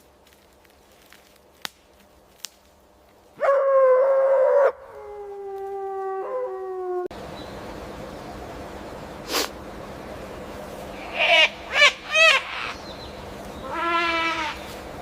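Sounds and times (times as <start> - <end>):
dog howling: 3.4 - 7.1.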